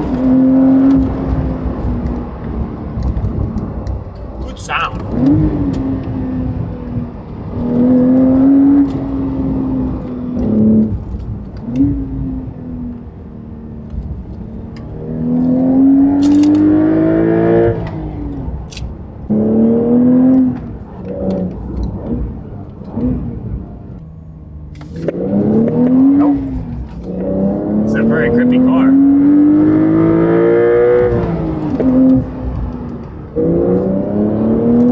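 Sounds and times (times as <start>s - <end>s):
sports car engine accelerating: 0.0s - 34.9s
engine rev blips: 25.1s - 32.7s.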